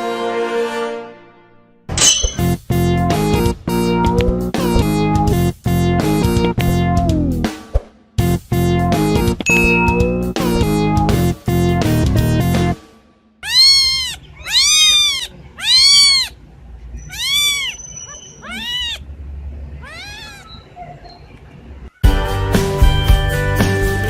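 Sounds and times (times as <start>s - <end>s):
background music: 0.0s - 7.6s, 8.2s - 13.2s, 22.0s - 24.0s
cat meowing: 13.4s - 16.4s, 17.0s - 19.1s, 19.8s - 20.8s.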